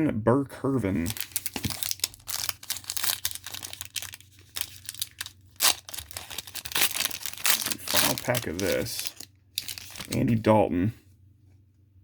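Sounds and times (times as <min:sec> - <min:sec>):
foil wrapper ripping: 0:01.0 - 0:10.3
foil wrapper crinkling: 0:01.0 - 0:10.4.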